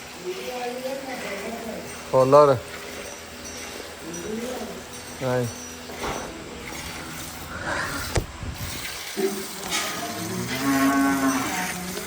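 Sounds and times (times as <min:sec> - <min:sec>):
cow mooing: 0:10.0 - 0:12.0.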